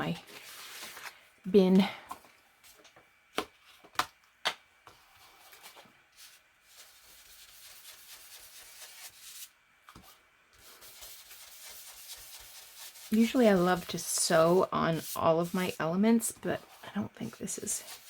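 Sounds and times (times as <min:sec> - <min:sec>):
paper rustling and rubbing: 0:00.1 - 0:01.2, 0:05.2 - 0:18.0.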